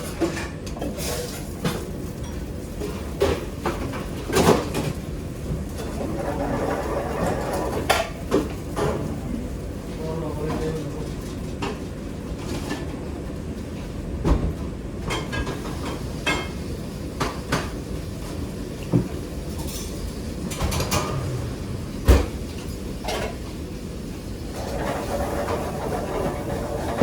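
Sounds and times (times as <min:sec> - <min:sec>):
low rumble: 0:20.8 - 0:23.0.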